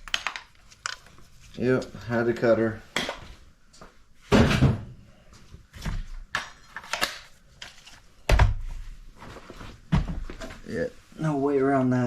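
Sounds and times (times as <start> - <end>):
tools and metal parts clinking: 0.0 - 1.1.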